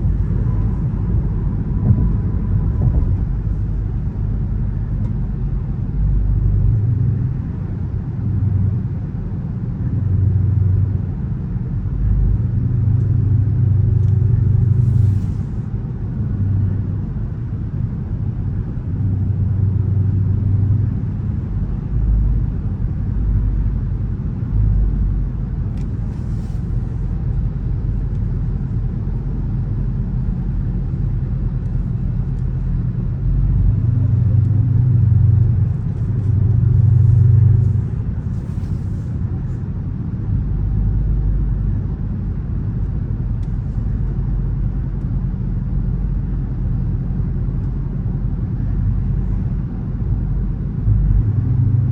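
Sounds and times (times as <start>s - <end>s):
car engine rumble: 0.0s - 51.9s
road noise: 0.0s - 51.9s.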